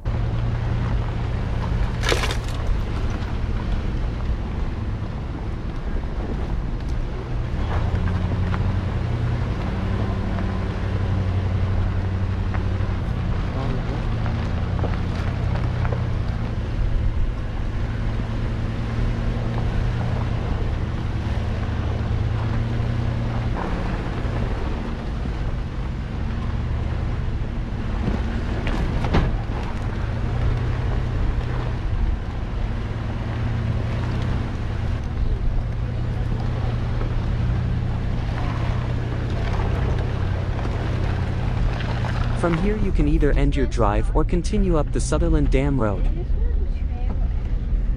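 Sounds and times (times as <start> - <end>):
truck engine droning: 0.0 - 47.9.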